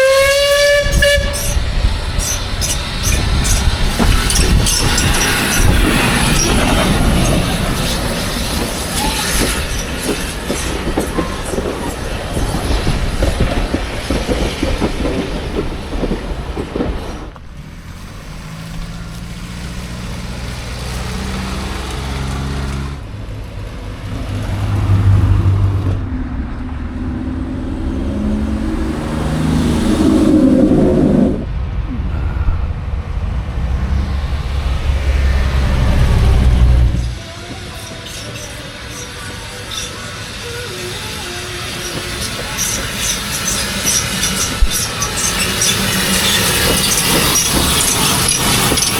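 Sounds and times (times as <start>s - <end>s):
wheels clicking on rails: 0.0s - 31.4s, 33.4s - 48.9s
train running on track: 0.0s - 48.9s
low engine hum: 15.6s - 38.0s.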